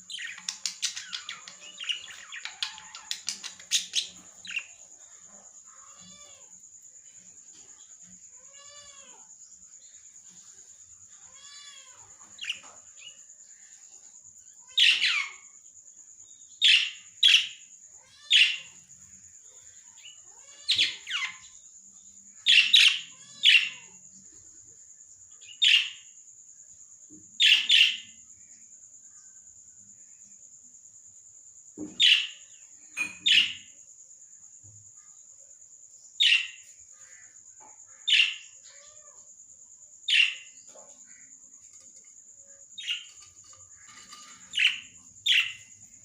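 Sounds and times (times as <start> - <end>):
parrots calling: 0.0 - 6.4, 14.6 - 15.4, 16.6 - 18.8, 20.0 - 21.6, 22.4 - 24.0, 33.0 - 33.7, 36.2 - 37.2, 38.0 - 39.2, 40.1 - 41.3, 42.8 - 45.8.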